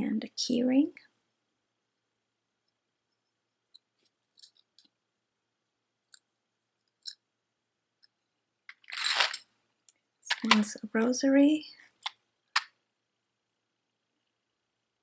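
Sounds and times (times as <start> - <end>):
metal jewelry clinking: 8.7 - 9.4.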